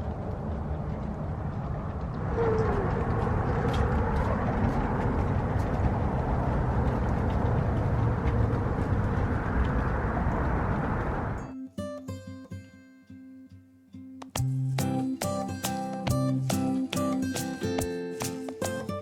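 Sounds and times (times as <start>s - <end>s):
low rumbling noise: 0.0s - 11.4s.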